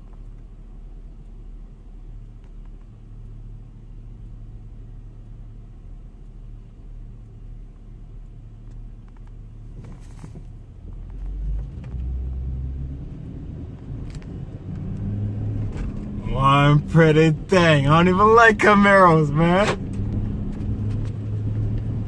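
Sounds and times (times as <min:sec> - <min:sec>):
car engine rumbling: 0:00.0 - 0:22.0.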